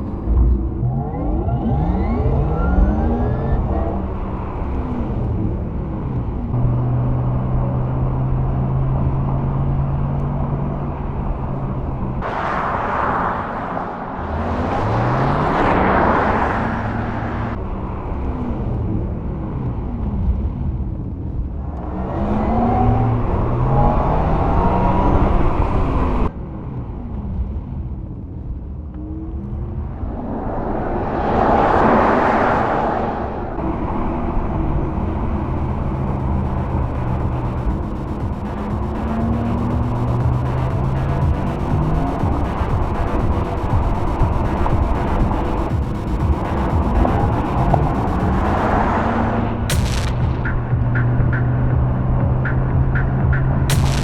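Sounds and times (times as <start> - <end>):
electric car drive whine: 0.0 - 54.0
tyre and wind rush: 12.2 - 18.0, 29.8 - 39.0.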